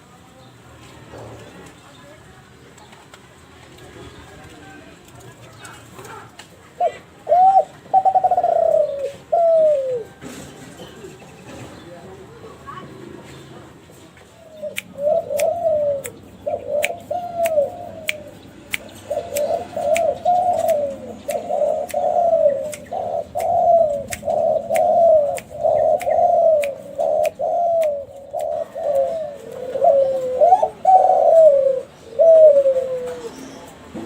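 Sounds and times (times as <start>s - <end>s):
dove cooing: 5.9s - 11.0s, 14.5s - 33.8s
sharp ticks: 14.7s - 28.5s.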